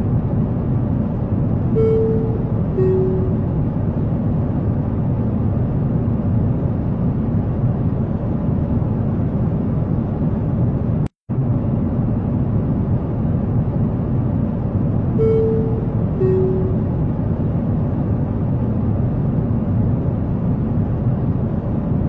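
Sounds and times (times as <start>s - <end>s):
airliner cabin rumble: 0.0s - 22.0s
clear tone: 1.7s - 3.7s, 15.1s - 17.2s.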